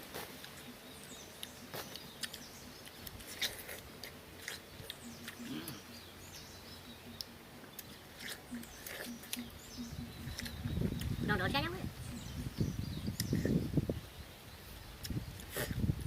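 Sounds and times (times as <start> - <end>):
watermelon crunching: 0.0 - 6.4, 7.1 - 11.2
birds chirping: 0.0 - 15.9.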